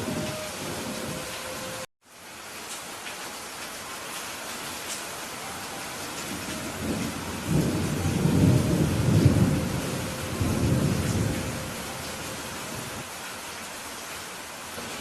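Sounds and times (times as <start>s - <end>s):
rain falling: 0.0s - 15.0s
thunder rumbling: 6.2s - 13.0s.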